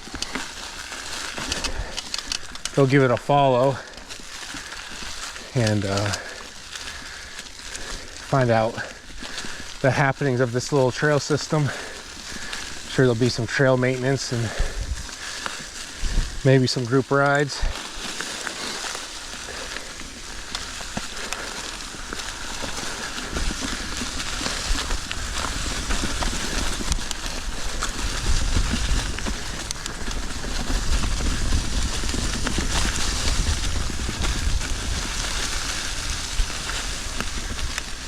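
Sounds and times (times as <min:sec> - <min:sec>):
bike clicks and rattles: 0:00.0 - 0:38.0
bike tyres over dirt and stones: 0:00.0 - 0:38.0
wind rumble on microphone: 0:14.5 - 0:15.2, 0:15.9 - 0:16.5, 0:22.0 - 0:38.0.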